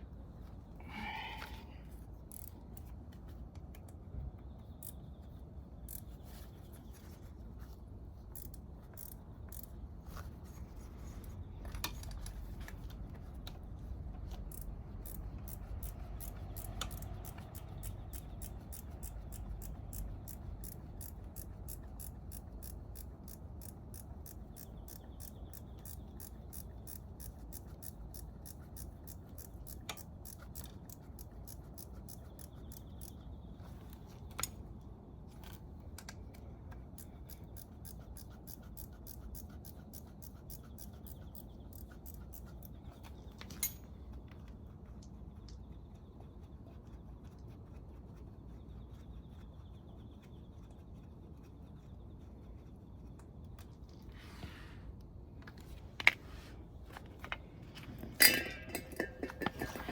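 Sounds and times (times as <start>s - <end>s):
ratchet wrench clicking: 2.3s - 2.9s, 8.3s - 9.7s, 14.4s - 33.2s.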